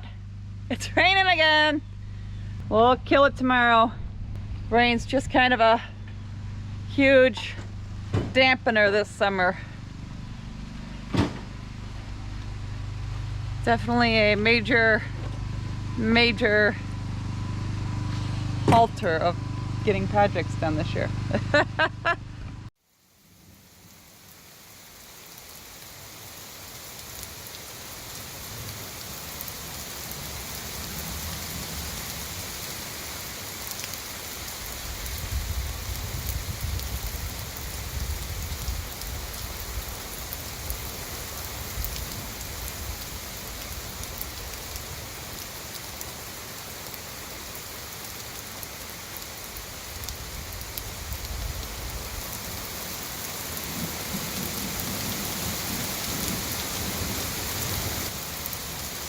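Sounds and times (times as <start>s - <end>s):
low rumble: 0.0s - 22.7s
steady rain falling: 22.8s - 59.0s.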